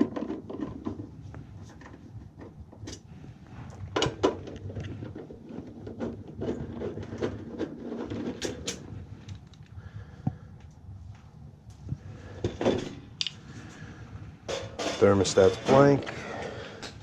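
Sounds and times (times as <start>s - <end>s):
parts clicking and rattling: 3.7s - 9.8s, 12.4s - 13.8s.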